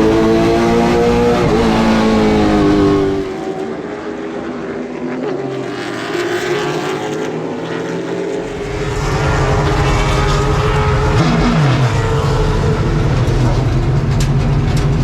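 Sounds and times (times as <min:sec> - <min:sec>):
deep loud race car engine: 0:00.0 - 0:15.0
race car engines: 0:00.0 - 0:15.0
race car passing by: 0:02.2 - 0:14.2.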